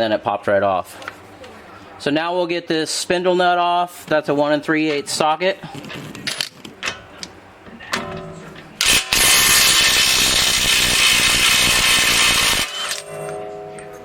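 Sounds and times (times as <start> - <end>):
impact wrench hammering: 8.8 - 13.4
metal clinks: 12.8 - 14.0.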